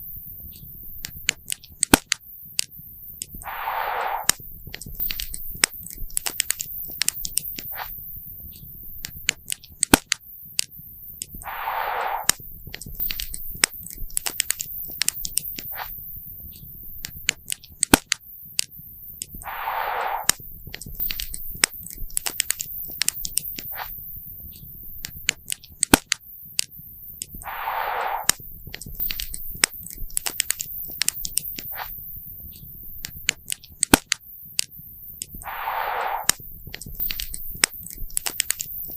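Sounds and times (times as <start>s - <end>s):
puff of hissing noise: 3.4s - 4.4s, 11.4s - 12.4s, 19.4s - 20.4s, 27.4s - 28.5s, 35.4s - 36.5s.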